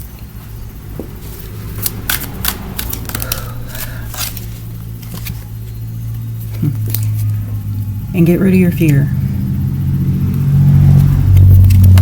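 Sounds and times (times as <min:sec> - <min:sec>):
steady low hum: 0:00.0 - 0:12.0
cards being shuffled: 0:01.2 - 0:05.5, 0:06.4 - 0:07.4.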